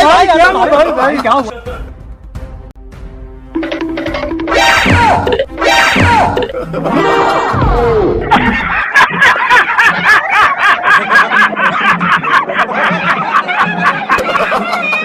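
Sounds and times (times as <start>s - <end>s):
person laughing hard: 6.1s - 15.0s.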